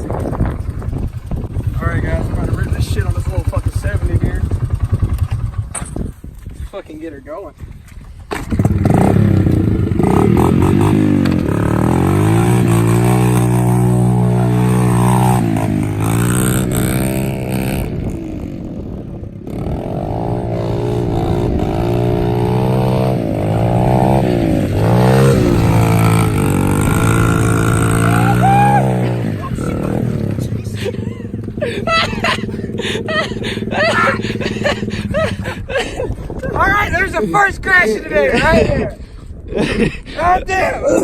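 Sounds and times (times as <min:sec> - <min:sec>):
dirt bike engine revving: 0:08.3 - 0:35.6.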